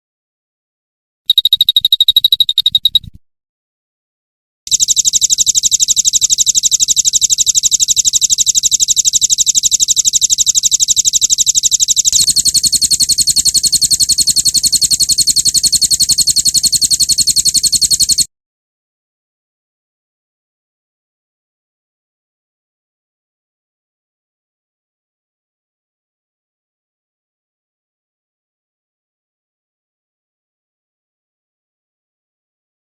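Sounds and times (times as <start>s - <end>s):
songbird fast trill: 1.3s - 3.1s.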